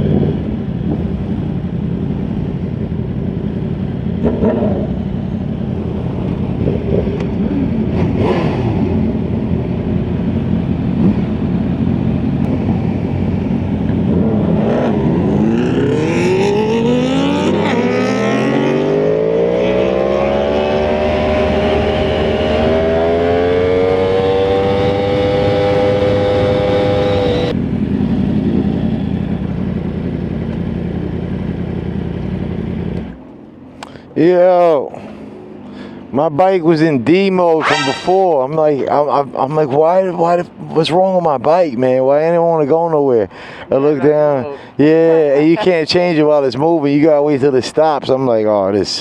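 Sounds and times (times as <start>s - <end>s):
motorcycle engine accelerating: 0.0s - 33.3s.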